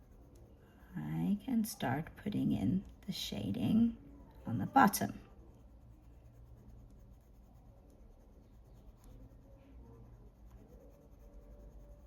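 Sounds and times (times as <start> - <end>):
pencil scratching on paper: 0.0 - 12.0.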